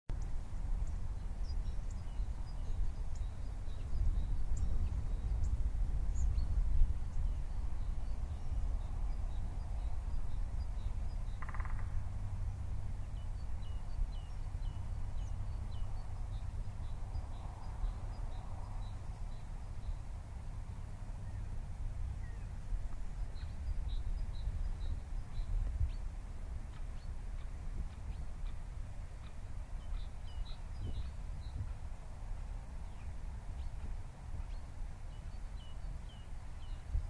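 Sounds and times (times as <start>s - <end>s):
small birds chirping: 0.1s - 37.0s
wind rumble on microphone: 0.1s - 37.0s
harsh lower bird call: 10.8s - 12.1s.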